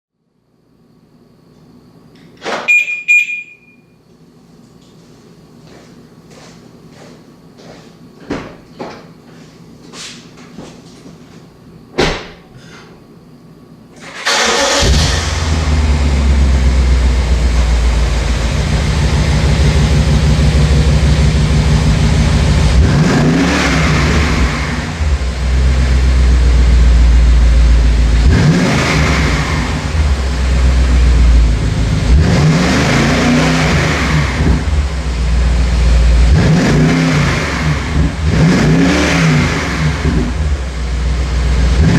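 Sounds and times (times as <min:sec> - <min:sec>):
car engine starting and idling: 0:14.0 - 0:41.9
car engine revving: 0:14.2 - 0:41.9.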